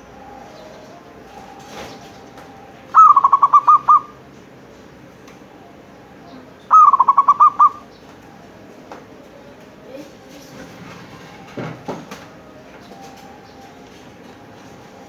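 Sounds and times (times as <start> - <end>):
dove cooing: 0.0 - 4.9, 6.1 - 11.5.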